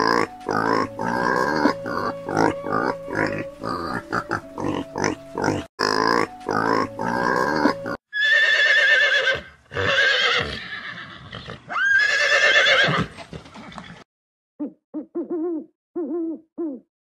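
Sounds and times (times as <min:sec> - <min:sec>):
owl hooting: 0:01.0 - 0:04.4, 0:14.6 - 0:16.8
horse whinnying: 0:07.5 - 0:14.0.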